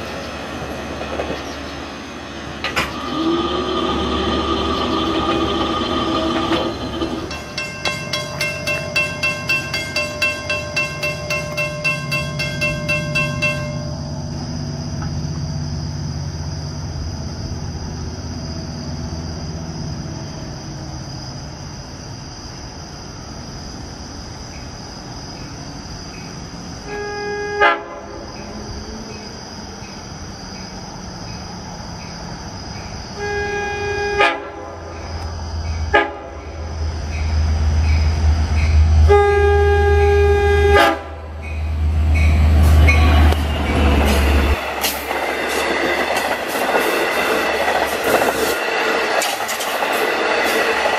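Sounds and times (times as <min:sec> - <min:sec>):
diesel locomotive engine rumbling: 0:00.0 - 0:50.9
train horn blasts: 0:26.8 - 0:28.2, 0:33.2 - 0:34.8, 0:35.9 - 0:36.6, 0:39.0 - 0:41.4.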